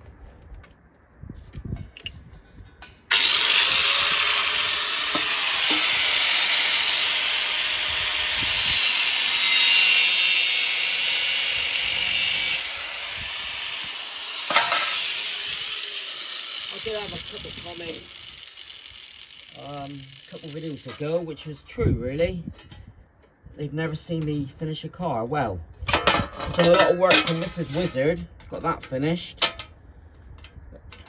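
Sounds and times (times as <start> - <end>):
power tool cutting sheet metal: 3.1 - 21.2.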